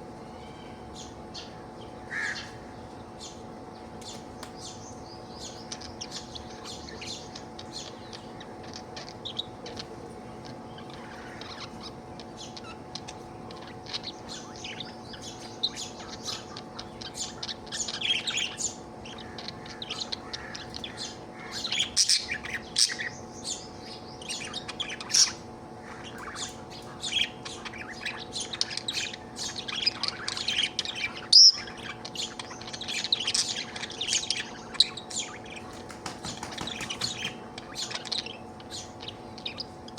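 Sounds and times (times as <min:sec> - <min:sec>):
steady low hum: 0:00.0 - 0:39.9
budgerigar chirping and squawking: 0:05.4 - 0:39.9.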